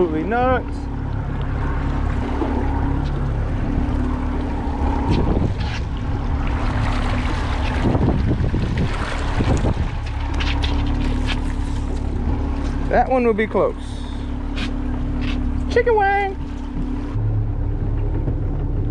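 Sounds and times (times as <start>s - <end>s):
boat motor running: 0.0s - 18.9s
water noise: 0.0s - 18.9s
wind noise: 1.6s - 12.8s.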